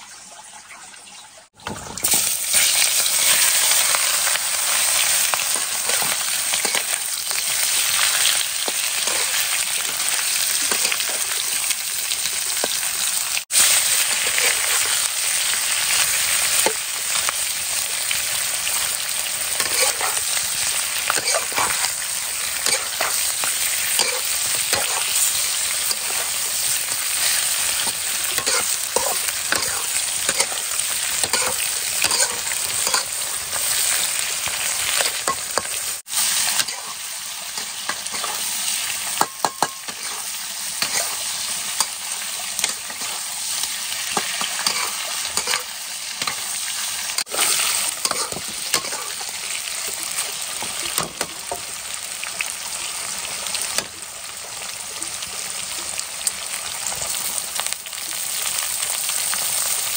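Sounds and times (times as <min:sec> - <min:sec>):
pork sizzling in a wok: 0:00.0 - 0:59.9
metal spatula scraping a pan: 0:04.9 - 0:11.5, 0:13.6 - 0:15.1, 0:19.5 - 0:46.5, 0:47.1 - 0:49.3.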